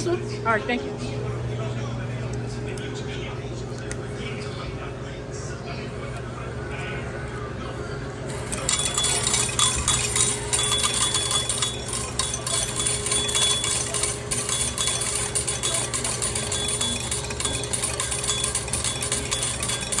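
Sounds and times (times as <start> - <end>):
metallic clinking and jingling: 8.3 - 20.0.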